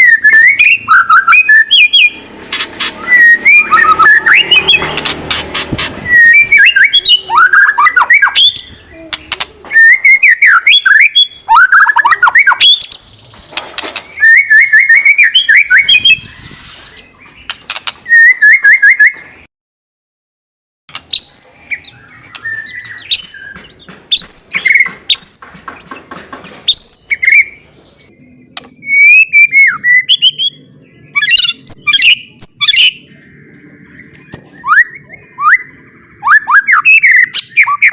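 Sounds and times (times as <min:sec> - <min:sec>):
bird chattering and whistling: 0:00.0 - 0:13.2, 0:21.0 - 0:25.6, 0:26.7 - 0:37.9.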